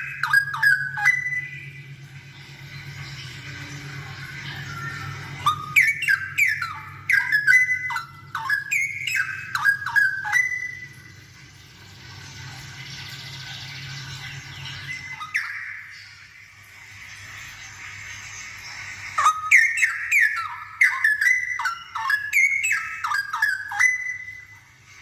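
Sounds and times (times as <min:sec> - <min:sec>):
bird singing whistled notes: 0:00.0 - 0:02.0, 0:04.4 - 0:11.0, 0:14.6 - 0:16.2, 0:19.2 - 0:24.6.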